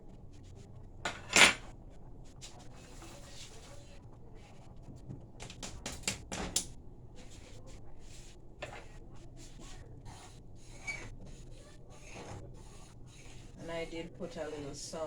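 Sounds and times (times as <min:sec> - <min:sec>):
pot and utensils clattering: 0:01.1 - 0:01.7.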